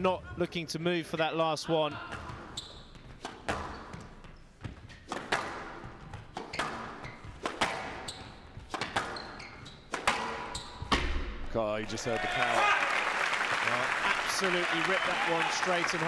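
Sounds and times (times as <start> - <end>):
squash ball smacking walls: 3.2 - 4.1, 4.7 - 11.4.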